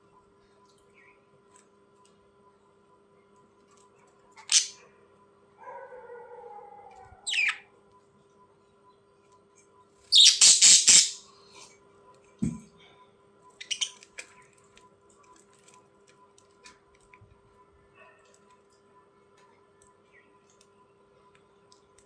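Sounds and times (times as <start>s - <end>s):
budgerigars chirping: 4.4s - 4.7s, 7.3s - 7.6s, 10.1s - 11.2s, 13.6s - 14.0s
harsh squawks: 10.1s - 11.2s
short low thump: 12.4s - 12.7s.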